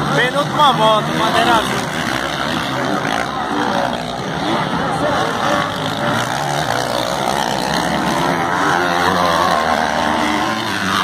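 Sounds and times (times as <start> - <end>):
motocross motorcycles revving: 0.0 - 11.0.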